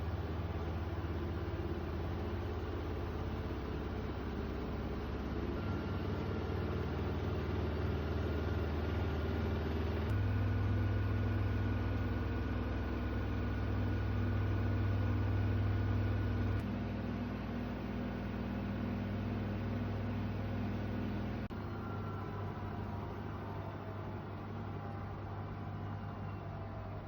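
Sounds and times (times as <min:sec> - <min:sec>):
washing machine humming: 0:00.0 - 0:27.0.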